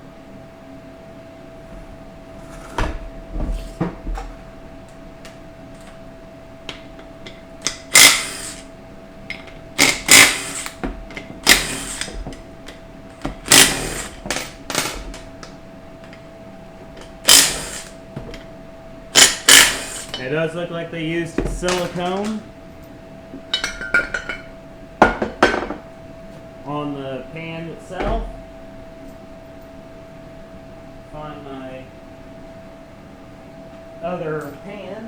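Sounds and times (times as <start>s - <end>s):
faint steady hum: 0.0s - 35.0s
power tool bursts: 7.6s - 8.7s, 9.8s - 12.3s, 13.2s - 15.2s, 17.0s - 18.0s, 19.1s - 20.3s.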